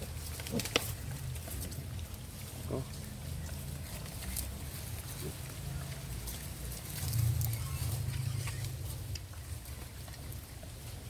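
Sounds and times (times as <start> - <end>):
pigs grunting: 0.0 - 6.0
small clicks and rustles: 0.0 - 11.0.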